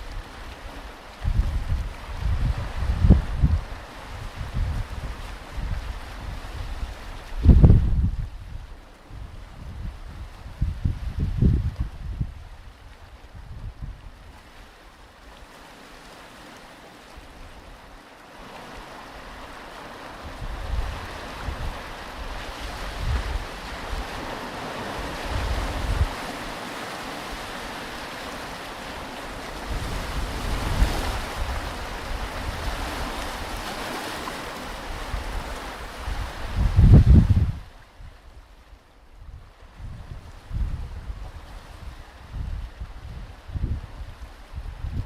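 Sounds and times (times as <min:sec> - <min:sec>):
ocean surf washing on beach: 0:00.0 - 0:45.0
wind buffeting microphone: 0:01.2 - 0:14.4, 0:20.2 - 0:26.2, 0:29.5 - 0:33.9, 0:34.8 - 0:38.5, 0:39.2 - 0:45.0.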